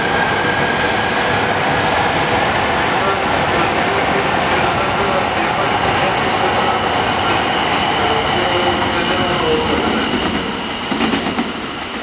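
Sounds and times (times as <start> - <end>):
thin high tone: 9.3 - 10.8.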